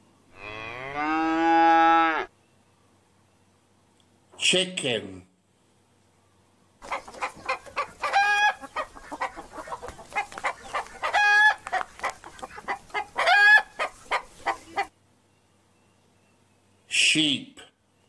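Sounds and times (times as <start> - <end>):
chicken clucking: 6.8 - 14.9
chicken high calls: 6.8 - 14.9.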